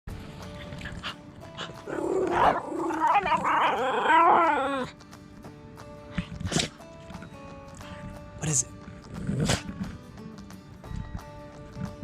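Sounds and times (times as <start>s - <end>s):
background music: 0.1s - 12.0s
dog growling and whining: 1.6s - 5.0s.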